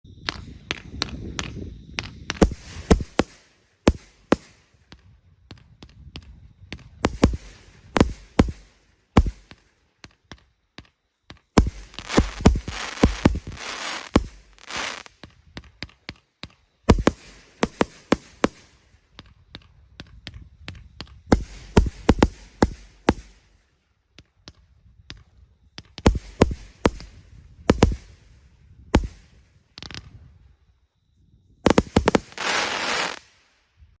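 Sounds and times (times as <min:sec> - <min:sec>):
firework crackling: 0:00.1 - 0:04.8, 0:06.9 - 0:09.7, 0:11.6 - 0:15.3, 0:16.9 - 0:19.0, 0:21.3 - 0:23.5, 0:26.0 - 0:28.4, 0:29.0 - 0:29.4, 0:31.7 - 0:33.6
firework launch thumps and bursts: 0:00.1 - 0:23.7, 0:25.8 - 0:30.2, 0:31.6 - 0:33.5.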